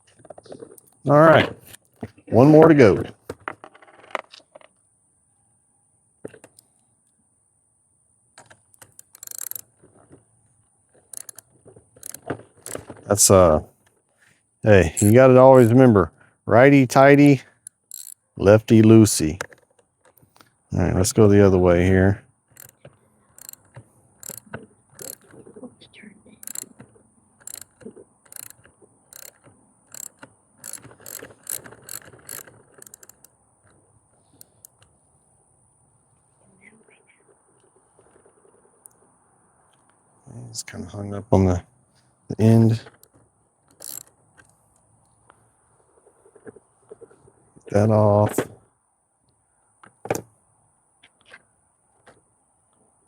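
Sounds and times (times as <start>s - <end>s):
metal parts rattling: 8.8s - 9.6s, 11.2s - 11.4s, 12.0s - 12.9s, 15.0s - 15.8s, 17.9s - 18.2s, 23.4s - 24.4s, 25.0s - 25.3s, 26.4s - 26.7s, 27.4s - 33.3s, 43.7s - 44.1s
socket ratchet clicking: 8.8s - 9.7s, 11.1s - 11.4s, 12.0s - 12.8s, 15.0s - 15.8s, 17.6s - 18.2s, 22.6s - 22.8s, 23.4s - 25.3s, 26.4s - 26.8s, 27.4s - 33.3s, 34.4s - 34.8s, 43.7s - 44.5s.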